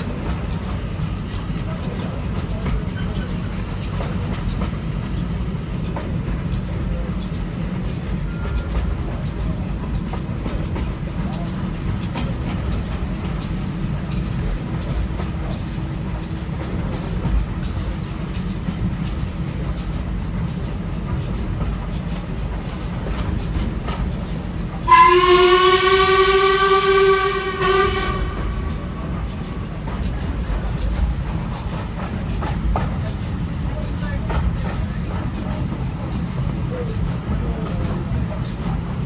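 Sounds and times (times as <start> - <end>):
steam train rumbling: 0.0 - 39.0
steam locomotive whistle: 24.8 - 30.4.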